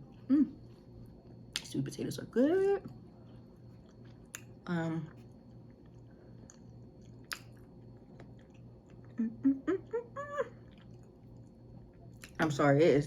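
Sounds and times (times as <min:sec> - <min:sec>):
person chewing food: 0:03.1 - 0:04.6, 0:05.2 - 0:09.8, 0:10.6 - 0:12.4.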